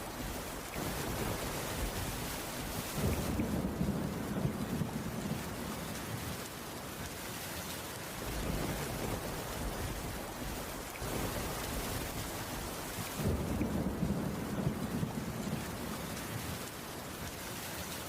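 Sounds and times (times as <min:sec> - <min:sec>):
heavy rain on a roof: 0:00.0 - 0:18.0.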